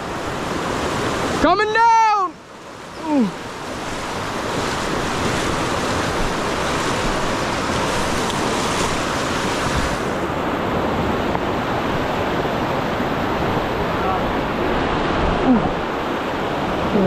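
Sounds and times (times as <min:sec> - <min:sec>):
rushing river current: 0:00.0 - 0:17.0.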